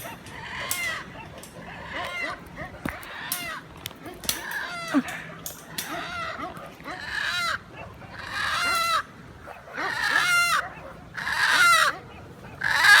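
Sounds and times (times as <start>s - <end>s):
chicken squawking: 9.6s - 13.0s.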